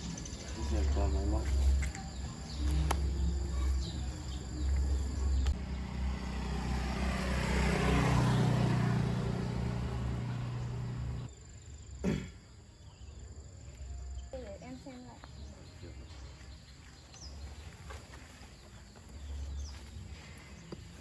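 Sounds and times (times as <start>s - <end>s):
vehicle engine running: 0.5s - 11.3s.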